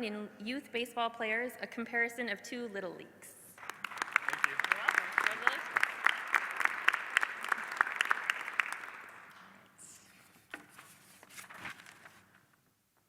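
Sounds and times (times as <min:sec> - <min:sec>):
audience applauding: 0:03.6 - 0:09.5
stray knocks and claps: 0:03.6 - 0:09.6.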